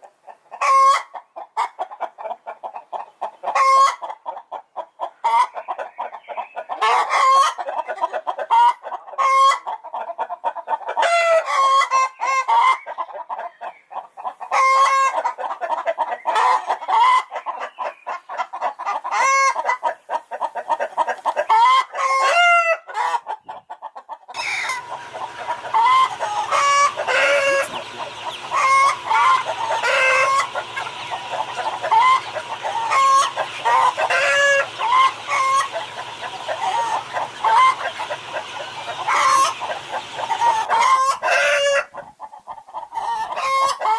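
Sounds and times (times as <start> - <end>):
chickens clucking: 0.0 - 43.9
steady low hum: 24.7 - 40.7.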